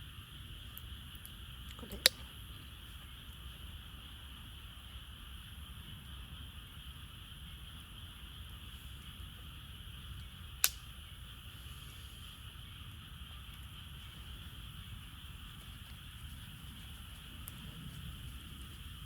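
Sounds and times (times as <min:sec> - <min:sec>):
burning wood popping: 0:08.4 - 0:19.0.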